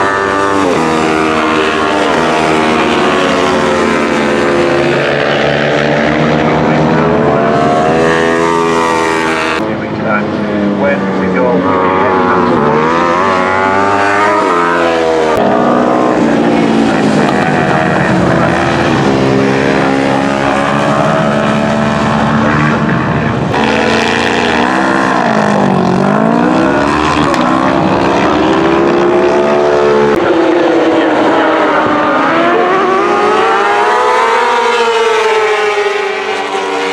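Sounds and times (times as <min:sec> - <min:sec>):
racing motorcycle engines revving: 0:00.0 - 0:36.9.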